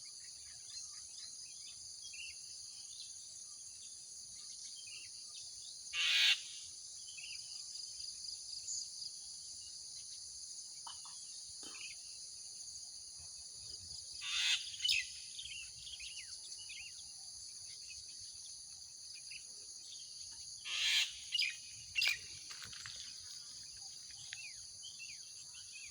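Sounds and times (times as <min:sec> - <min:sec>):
high drone of insects: 0:00.0 - 0:25.9
small bird chirps: 0:14.2 - 0:17.0, 0:19.2 - 0:25.9.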